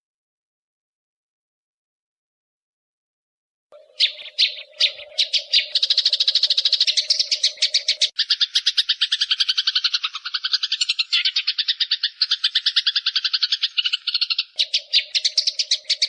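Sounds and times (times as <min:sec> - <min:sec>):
sparrows chattering: 0:03.8 - 0:16.0.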